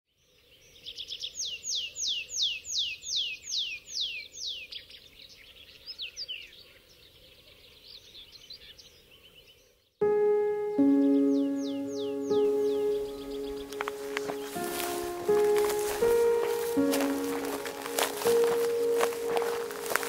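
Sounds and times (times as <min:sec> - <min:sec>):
music: 0:10.0 - 0:20.0.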